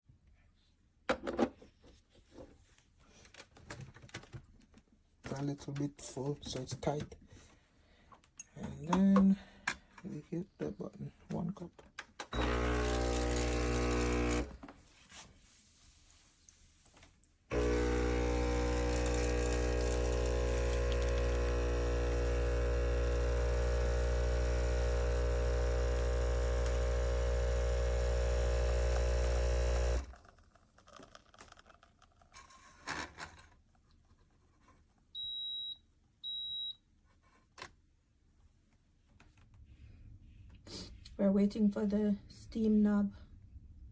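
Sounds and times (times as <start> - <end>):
espresso machine pump buzzing: 12.4 - 14.6, 17.5 - 30.3.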